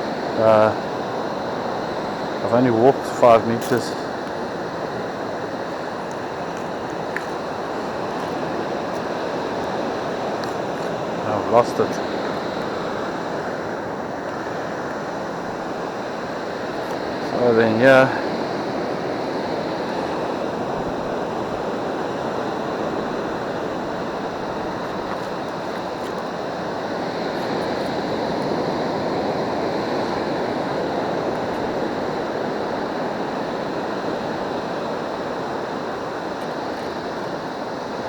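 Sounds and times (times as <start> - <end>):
surf washing on beach: 0.0 - 38.0.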